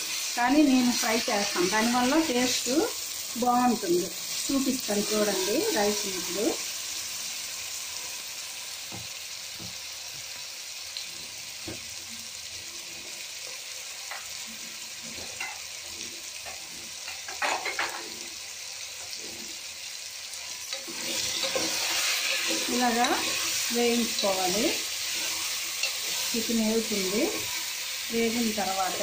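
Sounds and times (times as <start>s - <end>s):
chicken sizzling in oil: 0.0s - 29.0s
spatula scraping pot: 4.9s - 6.3s, 20.7s - 27.8s.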